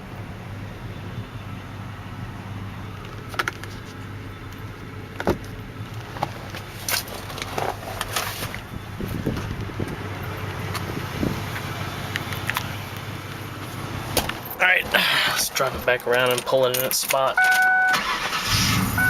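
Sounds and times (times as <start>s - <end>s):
car engine idling: 0.0s - 19.0s
clicks and knocks from car parts: 3.0s - 10.0s, 14.1s - 15.0s, 15.6s - 17.8s.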